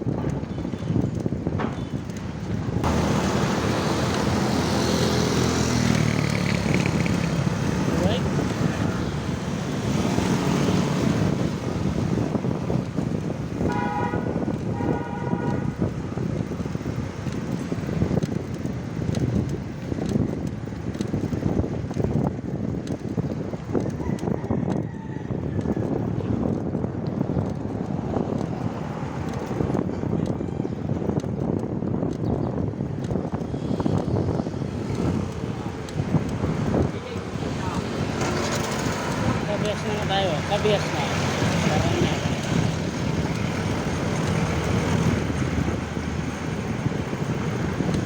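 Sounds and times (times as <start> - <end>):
road traffic: 0.0 - 48.0
wind on microphone: 0.0 - 48.0
vehicle horn honking: 13.6 - 15.9.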